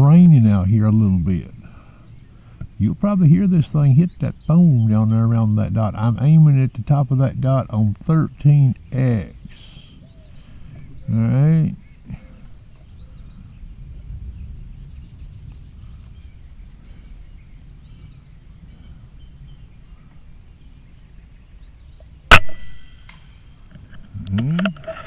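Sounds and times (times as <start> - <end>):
light rain hiss: 0.0 - 25.0
faint bird chirps: 8.2 - 24.6
pellet striking steel target: 22.3 - 23.2
air rifle shot: 22.3 - 23.4.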